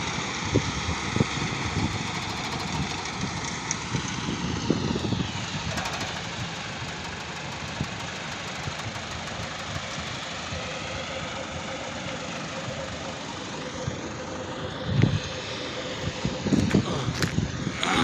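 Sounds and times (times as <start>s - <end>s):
steady whine: 1.1s - 18.0s
small motor running: 1.6s - 11.0s.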